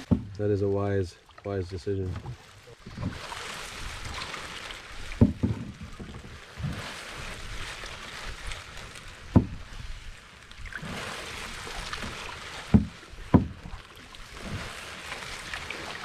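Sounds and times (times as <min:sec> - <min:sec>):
sharp knocks: 0:00.0 - 0:00.4, 0:05.2 - 0:06.0, 0:12.7 - 0:13.6
water swishing with paddle strokes: 0:00.0 - 0:16.0.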